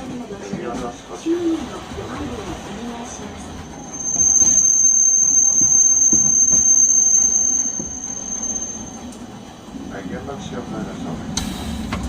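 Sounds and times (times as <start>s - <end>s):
tram wheels squealing on rails: 0.2s - 9.8s.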